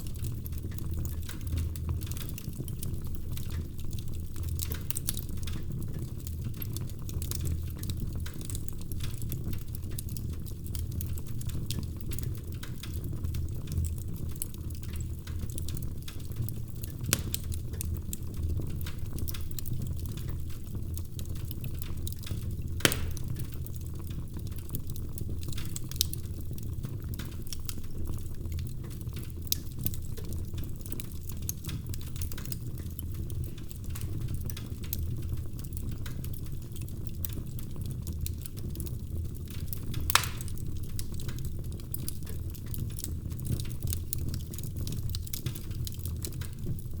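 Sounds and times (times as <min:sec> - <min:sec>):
low rumble of flame: 0:00.0 - 0:47.0
wood fire crackling: 0:00.0 - 0:47.0
sharp loud pops of fire: 0:22.8 - 0:23.4, 0:40.1 - 0:40.6.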